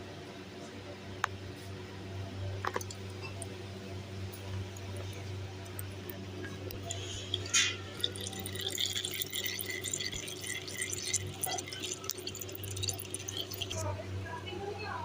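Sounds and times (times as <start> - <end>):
oil trickling and dripping: 2.7 - 3.6, 4.3 - 14.0.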